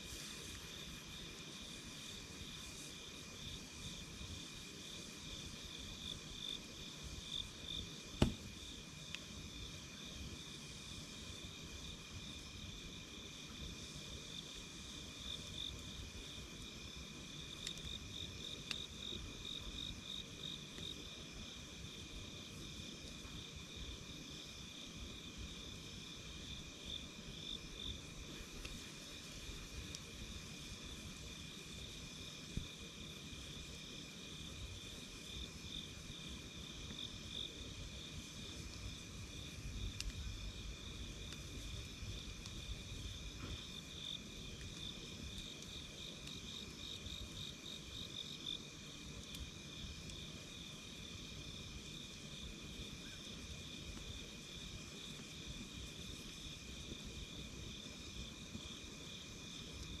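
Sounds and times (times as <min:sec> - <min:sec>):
campfire crackles: 0:00.0 - 1:00.0
crickets chirping: 0:00.1 - 1:00.0.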